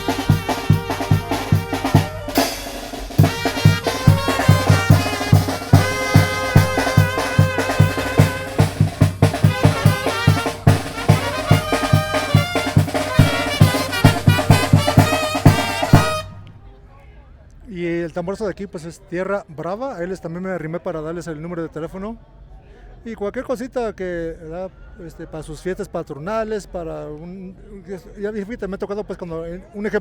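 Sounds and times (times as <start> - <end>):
snare drum: 0.0 - 16.5
bass drum beat: 0.0 - 16.6
brass melody: 0.0 - 16.7.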